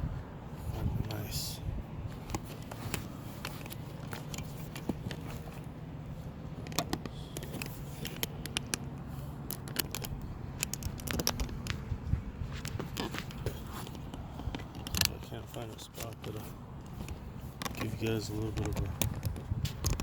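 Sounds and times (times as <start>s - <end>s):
steady low hum: 0.0s - 20.0s
camera handling clicks and rustles: 2.1s - 11.9s, 12.5s - 20.0s.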